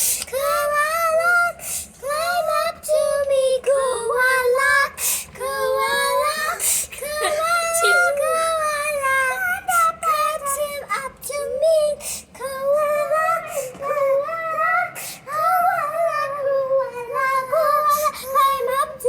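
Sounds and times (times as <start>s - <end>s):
girls singing wordless tune: 0.0s - 19.0s
short breaths: 1.6s - 2.0s, 12.0s - 12.4s.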